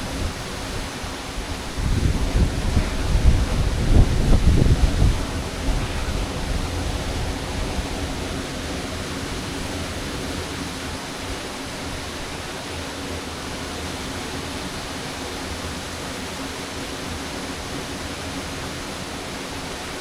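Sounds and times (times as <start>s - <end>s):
waterfall rushing: 0.0s - 20.0s
low rumble: 1.5s - 11.2s.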